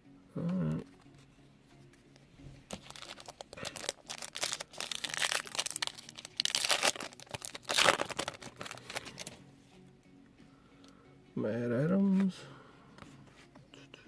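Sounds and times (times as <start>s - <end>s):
plastic wrapper crinkling: 2.7s - 9.4s.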